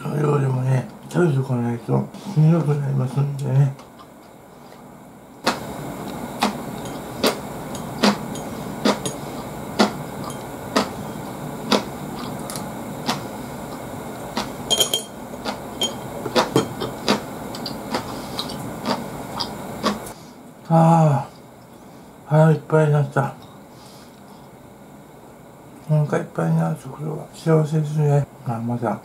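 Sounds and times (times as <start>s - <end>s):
steady hiss: 0.0s - 29.0s
person chewing crunchy vegetables: 5.4s - 14.7s, 15.4s - 20.2s.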